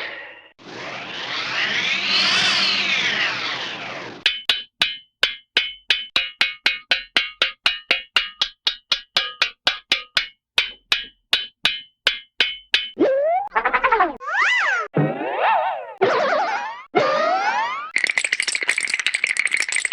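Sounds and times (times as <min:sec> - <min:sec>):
swooping sound effect: 0:00.0 - 0:04.2, 0:13.0 - 0:17.9
hollow wood-block knocks: 0:04.3 - 0:13.0.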